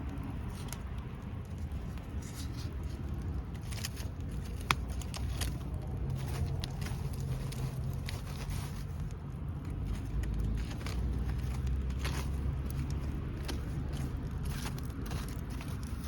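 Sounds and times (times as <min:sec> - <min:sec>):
bonfire crackling: 0:00.0 - 0:16.0
steady low rumble: 0:00.0 - 0:16.0.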